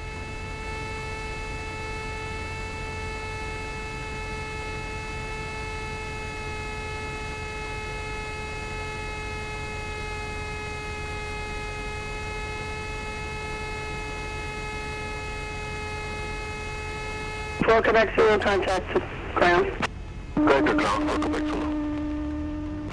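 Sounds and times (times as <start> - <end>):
steady electrical hum: 0.0 - 22.9
low rumble: 18.9 - 22.9.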